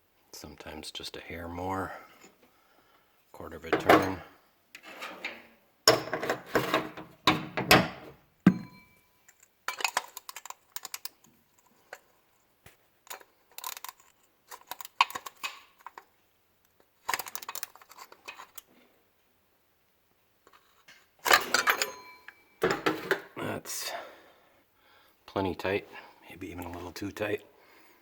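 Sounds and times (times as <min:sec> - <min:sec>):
metal tool clatter: 0:03.7 - 0:07.8, 0:21.2 - 0:23.3.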